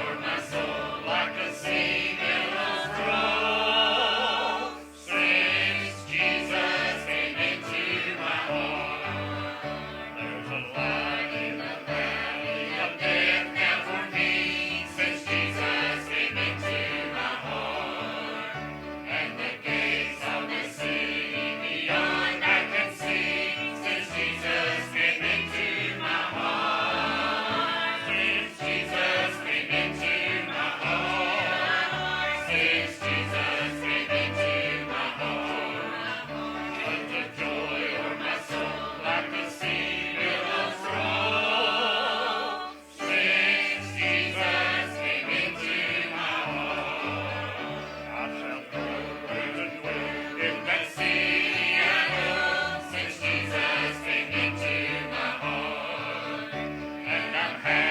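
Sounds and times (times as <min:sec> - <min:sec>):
church choir singing: 0:00.0 - 0:57.9
instrumental accompaniment: 0:00.0 - 0:57.9.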